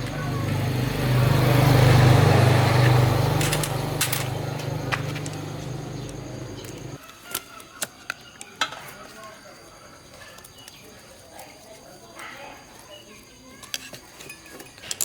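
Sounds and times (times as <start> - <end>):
machine humming and hissing: 0.0 - 7.0.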